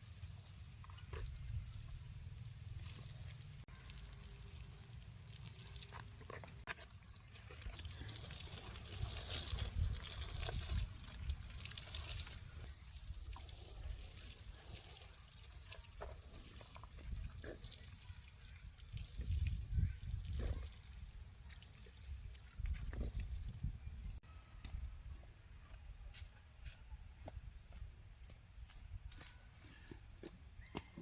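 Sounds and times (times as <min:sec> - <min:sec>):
water running and trickling: 0:00.0 - 0:24.2.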